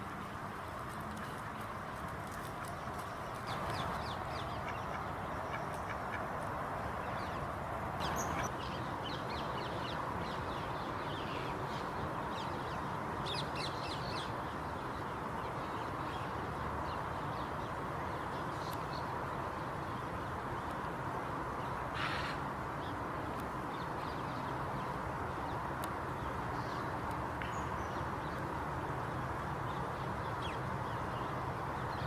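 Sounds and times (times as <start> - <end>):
steady background hiss: 0.0 - 32.0
birds calling in sharp bursts: 22.0 - 22.4.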